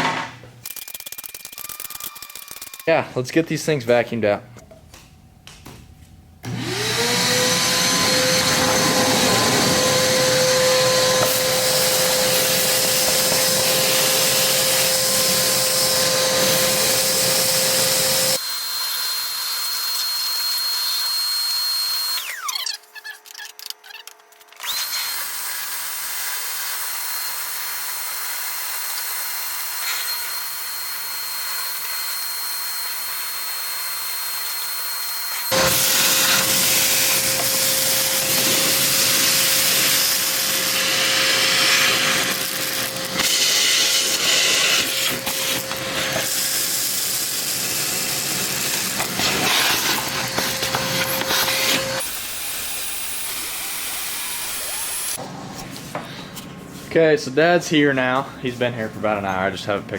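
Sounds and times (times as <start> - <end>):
vacuum cleaner motor whining: 6.4 - 22.7, 24.6 - 55.3.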